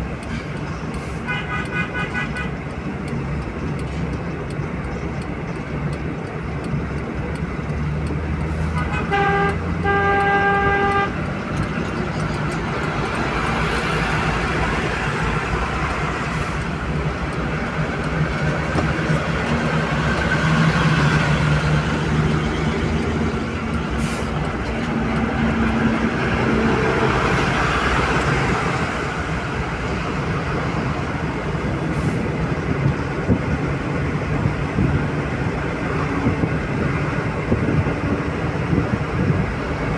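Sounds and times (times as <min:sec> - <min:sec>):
car driving at highway speed: 0:00.0 - 0:39.9
car horn blast: 0:08.8 - 0:11.2.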